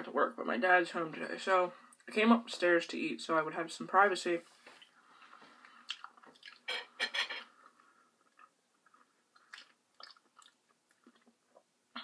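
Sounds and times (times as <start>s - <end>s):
person chewing with wet smacks: 4.8s - 6.7s, 7.6s - 12.0s.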